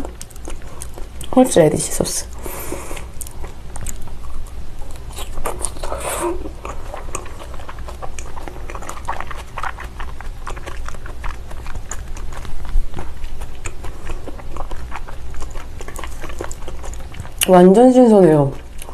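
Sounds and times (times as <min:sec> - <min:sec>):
wet chewing squelches: 0:00.0 - 0:18.9.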